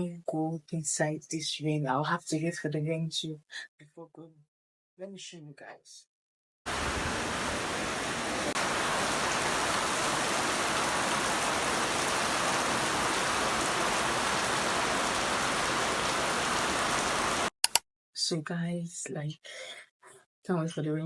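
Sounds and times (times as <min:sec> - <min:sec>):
rain falling steadily: 0:06.7 - 0:17.5.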